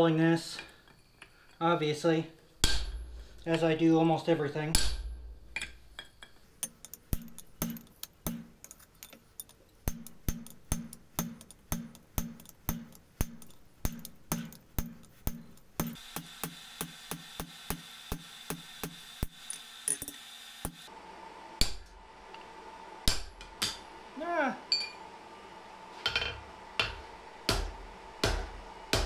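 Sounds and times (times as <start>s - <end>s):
hammer striking hot steel on anvil: 2.6s - 3.1s, 4.7s - 8.7s, 9.9s - 20.9s, 23.0s - 23.9s, 26.1s - 29.0s.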